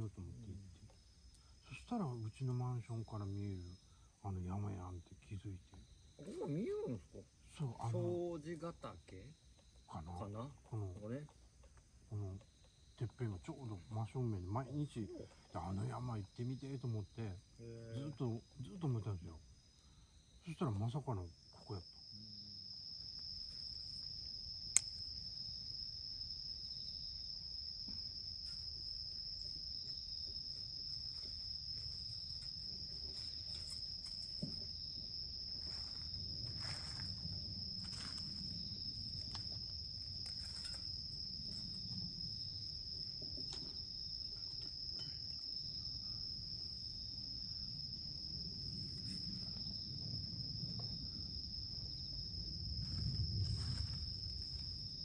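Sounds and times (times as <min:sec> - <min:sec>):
insects chirring: 0:00.0 - 0:55.0
sharp click: 0:24.7 - 0:25.0.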